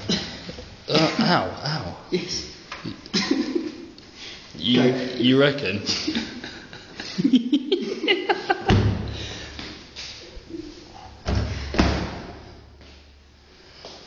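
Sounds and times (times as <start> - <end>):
heavy thuds against dryer drum: 8.7 - 9.2.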